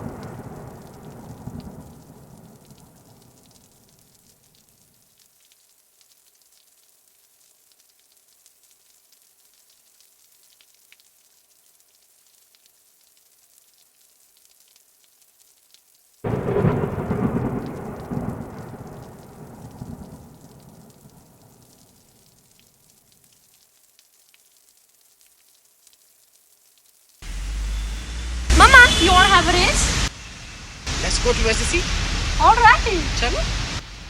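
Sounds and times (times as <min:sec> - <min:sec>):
thunder clap rumbling: 0:00.0 - 0:03.4, 0:16.3 - 0:21.7, 0:27.2 - 0:34.0
light rain hissing: 0:00.0 - 0:34.0.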